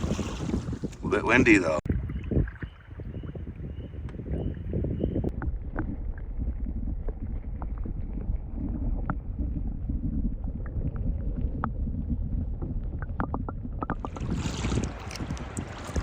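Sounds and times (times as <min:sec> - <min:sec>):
water splashing and dripping: 0:00.0 - 0:01.0, 0:05.3 - 0:16.0
wind buffeting microphone: 0:00.0 - 0:16.0.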